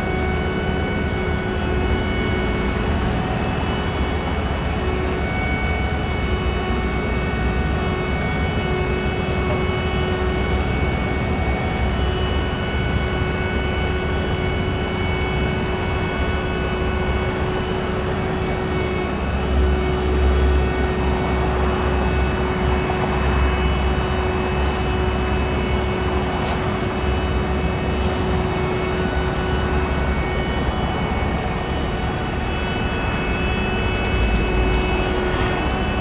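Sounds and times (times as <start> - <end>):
constant machinery whine: 0.0 - 36.0
deep diesel engine rumble: 14.6 - 36.0.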